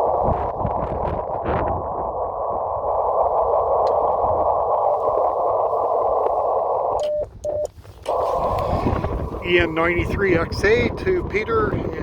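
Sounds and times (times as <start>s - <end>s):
radio receiver hiss: 0.0s - 12.0s
short beeps: 7.0s - 8.5s.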